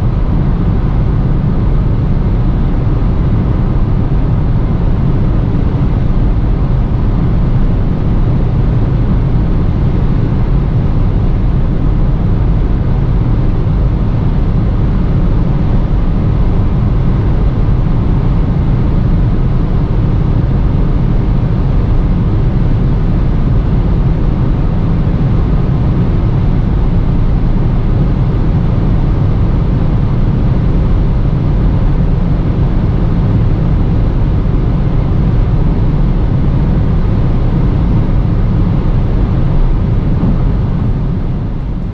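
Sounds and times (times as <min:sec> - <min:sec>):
car engine at full throttle: 0:00.0 - 0:41.9
road and wind noise rumble: 0:00.0 - 0:41.9.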